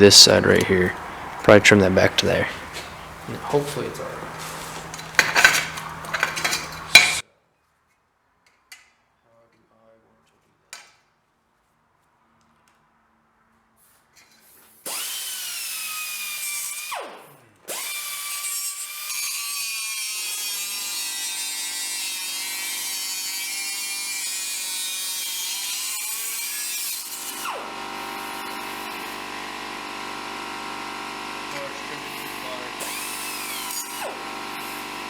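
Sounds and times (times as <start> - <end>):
power cutting tool cutting metal: 0.1 - 7.2, 14.8 - 35.0.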